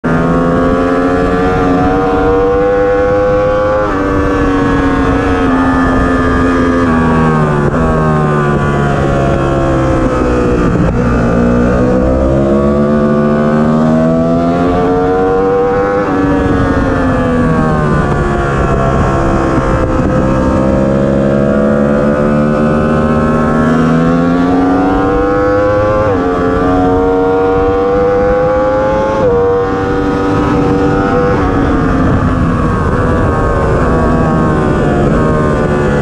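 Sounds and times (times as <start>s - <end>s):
motorcycle engine revving high: 0.0s - 36.0s
rushing wind: 0.0s - 36.0s.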